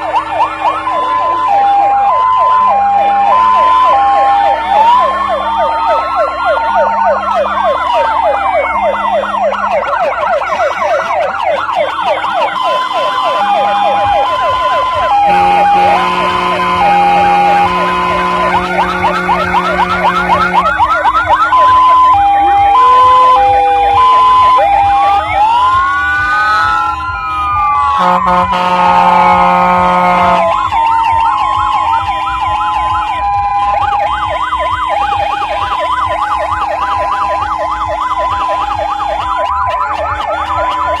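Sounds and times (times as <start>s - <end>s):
fire engine sirens: 0.0s - 41.0s
low horn tone: 12.5s - 21.3s, 28.0s - 30.6s.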